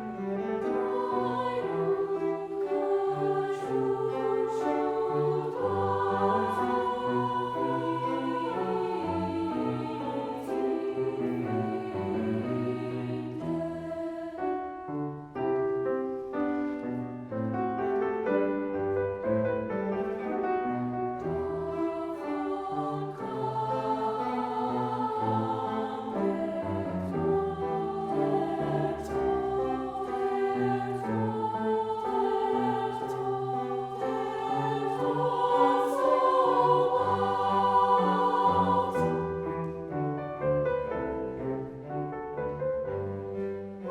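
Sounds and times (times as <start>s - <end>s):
choir singing: 0.0s - 43.9s.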